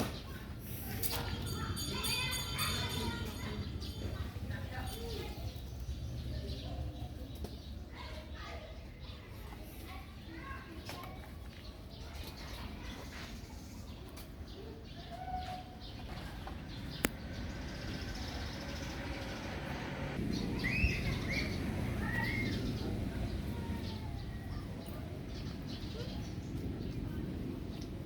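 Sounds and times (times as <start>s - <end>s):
steady low rumble: 16.0s - 28.0s.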